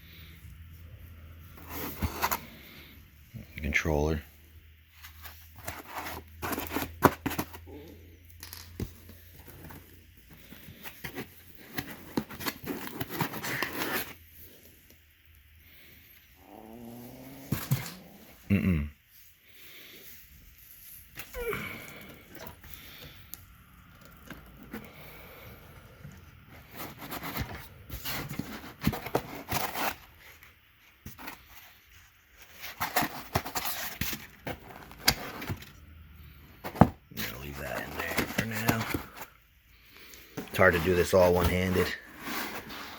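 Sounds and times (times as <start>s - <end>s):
packing material rustling: 4.9s - 15.1s
packaging rustling and crinkling: 4.9s - 16.0s, 20.1s - 42.9s.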